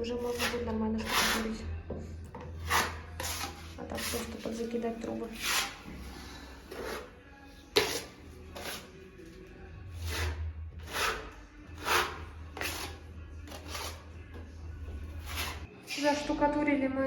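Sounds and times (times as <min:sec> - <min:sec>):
trowel scraping plaster: 0:00.2 - 0:01.6, 0:02.5 - 0:09.0, 0:09.9 - 0:14.1, 0:14.9 - 0:15.7.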